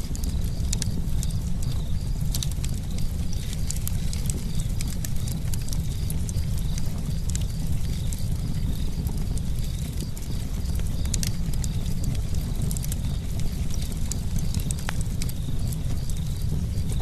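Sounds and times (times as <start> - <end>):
burning wood crackling and popping: 0.0 - 17.0
low rumble of campfire flames: 0.0 - 17.0.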